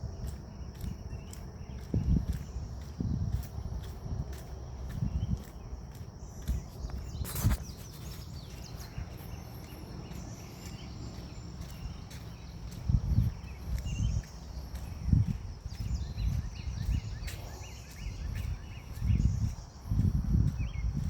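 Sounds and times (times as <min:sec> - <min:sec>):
footsteps on forest path: 0:00.0 - 0:21.0
grass insects droning: 0:00.0 - 0:21.0
bird chirps: 0:00.2 - 0:21.0.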